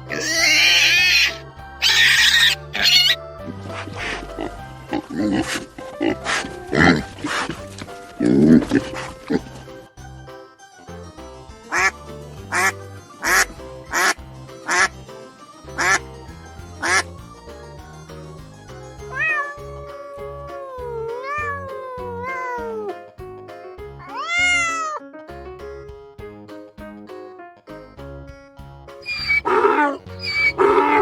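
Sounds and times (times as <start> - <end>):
background music: 0.0 - 31.0
cat meowing: 0.1 - 3.2, 19.1 - 23.0, 24.0 - 25.0, 29.1 - 31.0
duck quacking: 11.7 - 15.0, 15.8 - 16.0, 16.8 - 17.1, 29.1 - 31.0.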